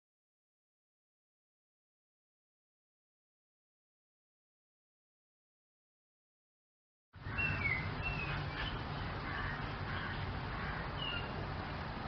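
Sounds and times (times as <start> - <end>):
steady low background noise: 7.2 - 12.0
high bird chirps: 7.3 - 10.2, 11.0 - 11.4.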